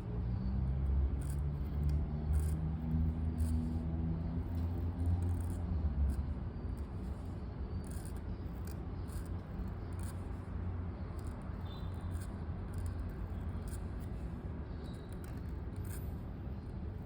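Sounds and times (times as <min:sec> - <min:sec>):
pen scratching on paper: 0:01.1 - 0:10.4.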